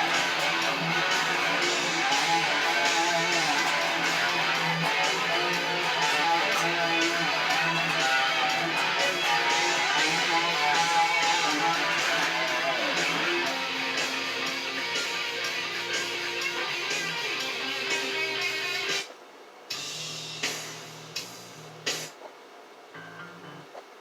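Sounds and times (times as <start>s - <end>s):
guitar strumming chords: 0.0s - 19.1s.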